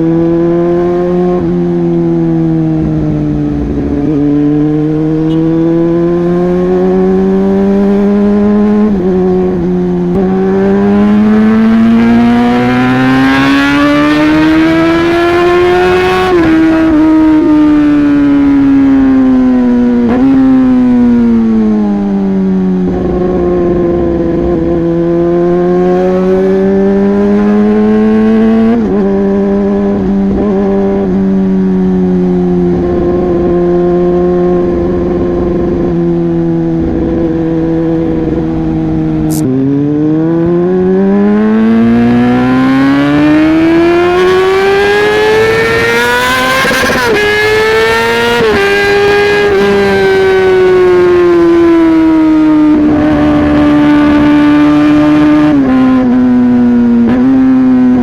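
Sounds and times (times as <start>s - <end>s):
motorcycle engine running: 0.0s - 13.8s, 15.2s - 47.2s.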